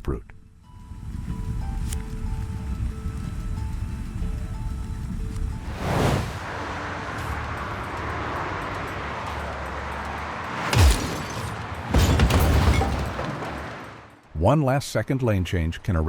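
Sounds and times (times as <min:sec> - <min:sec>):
heavy crash: 0:05.6 - 0:14.2
loud bang: 0:10.5 - 0:14.1.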